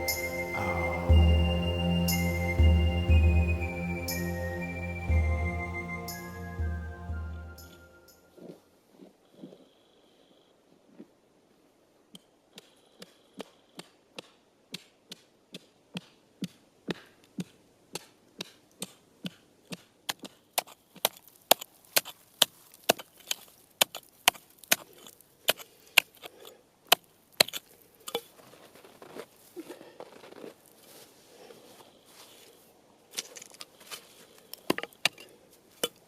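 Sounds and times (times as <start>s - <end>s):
footsteps crunching through snow: 28.3s - 32.7s.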